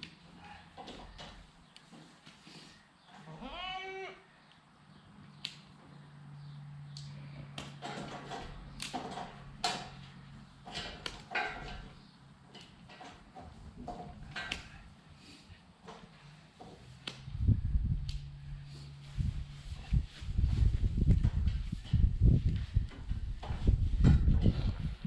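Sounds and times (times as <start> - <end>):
goat bleating: 3.2 - 4.3
low steady hum: 4.1 - 25.0.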